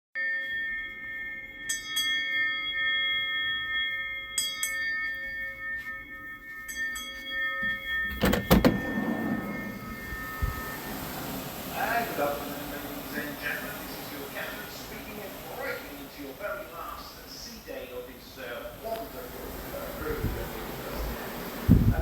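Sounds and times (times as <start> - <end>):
bell-like metallic ringing: 0.2 - 18.7
hiss: 10.3 - 17.7.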